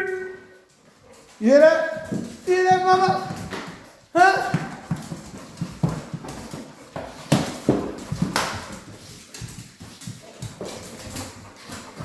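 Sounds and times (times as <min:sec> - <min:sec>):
dog claws clicking on hard floor: 0:04.5 - 0:12.0.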